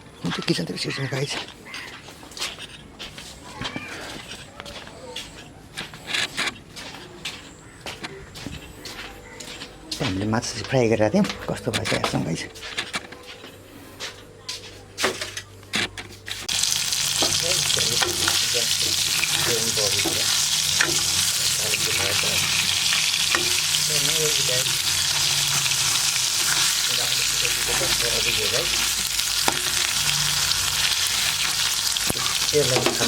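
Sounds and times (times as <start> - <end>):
fish sizzling in hot oil: 16.4 - 33.0.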